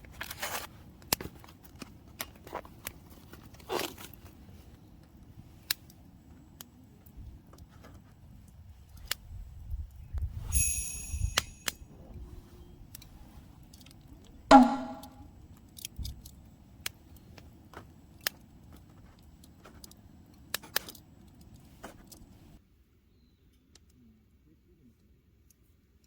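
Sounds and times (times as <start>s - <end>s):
metal jingle: 10.5s - 11.8s
loud metallic clank: 14.5s - 15.2s
wood fire crackling: 15.4s - 22.6s.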